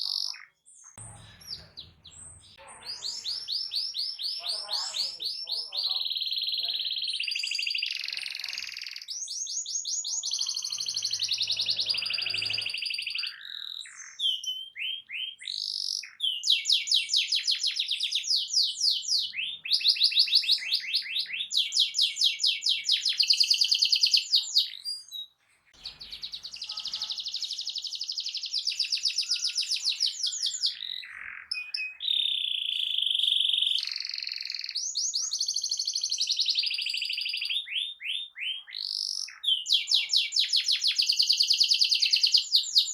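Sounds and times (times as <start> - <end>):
canary singing trills: 0.0 - 42.9.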